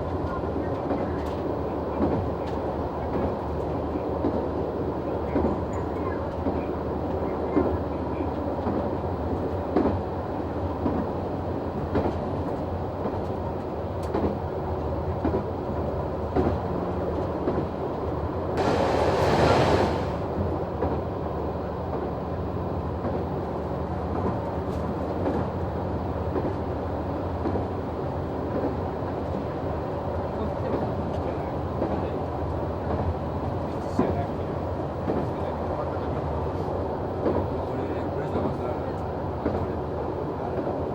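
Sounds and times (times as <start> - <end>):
diesel railcar engine drone: 0.0 - 40.9
loud rush of noise: 18.6 - 20.5
wheels clacking over rail joints: 18.6 - 21.0.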